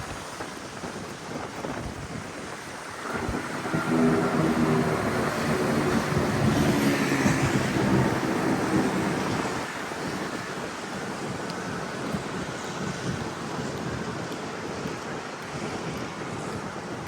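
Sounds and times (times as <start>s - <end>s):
rushing road noise: 0.0s - 17.0s
vehicle engine droning: 2.8s - 10.1s.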